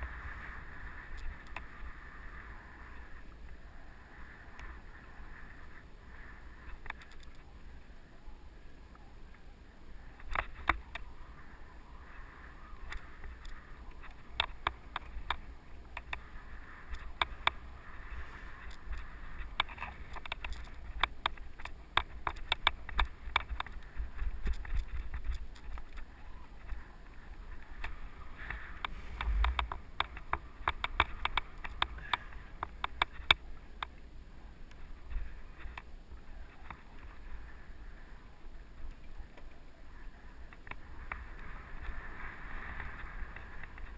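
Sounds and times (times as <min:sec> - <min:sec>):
low rumble: 0:28.3 - 0:30.0.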